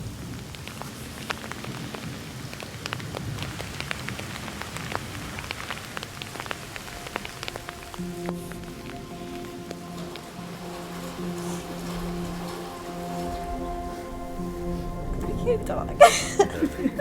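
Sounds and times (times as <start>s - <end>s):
steady rain falling: 0.0s - 17.0s
low held tones: 6.3s - 17.0s.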